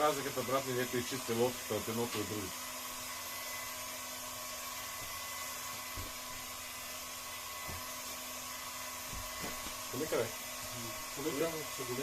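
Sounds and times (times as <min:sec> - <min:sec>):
heat gun blowing air: 0:00.0 - 0:12.0.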